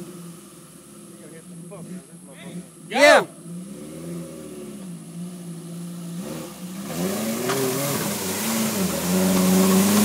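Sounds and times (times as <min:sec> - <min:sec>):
engine revving under load: 0:01.7 - 0:10.0
tires churning and mud splashing: 0:03.4 - 0:10.0.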